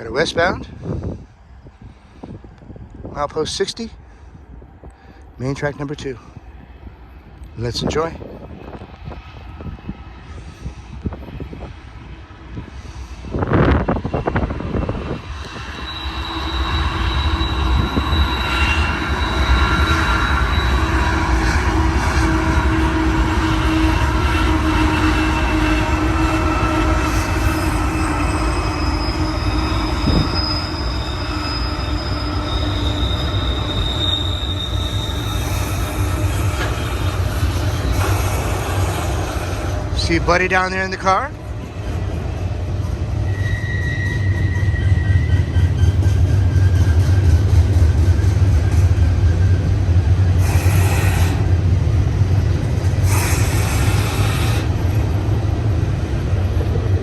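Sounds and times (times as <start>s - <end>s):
train wheels rumbling on rail: 0.0s - 57.0s
high-pitched wheel squeal: 14.8s - 39.8s, 43.1s - 47.4s, 49.2s - 51.5s.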